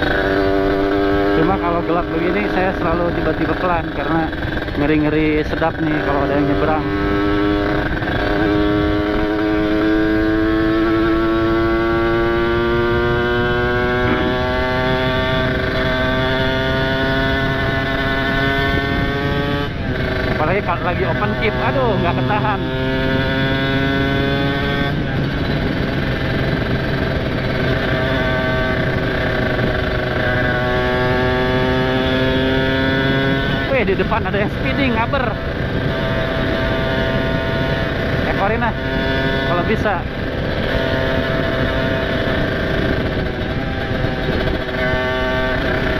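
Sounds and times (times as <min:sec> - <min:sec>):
motorcycle engine running: 0:00.0 - 0:45.9
wind rushing past helmet: 0:21.8 - 0:45.9.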